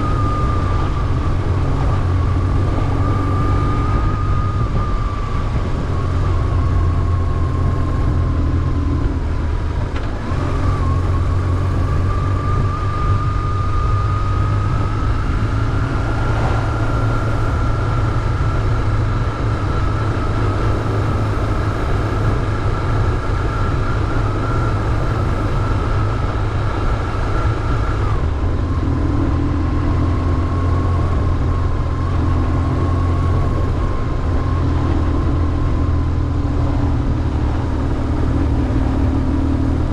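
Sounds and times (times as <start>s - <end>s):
motorcycle engine drone: 0.0s - 39.9s
thin whine: 0.0s - 39.9s.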